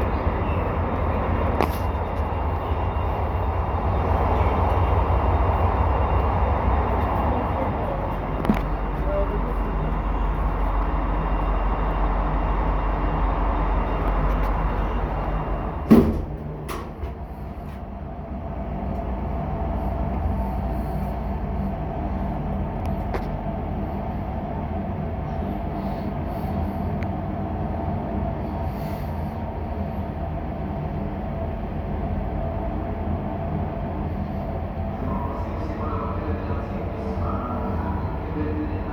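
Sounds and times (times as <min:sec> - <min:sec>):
elevator door thumping shut: 0:15.8 - 0:17.2.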